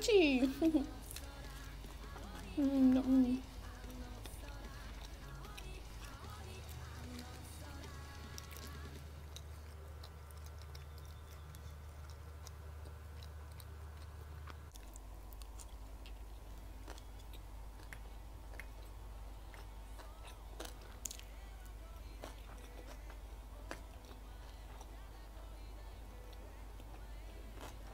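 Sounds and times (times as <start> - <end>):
person chewing food: 1.0 - 27.9.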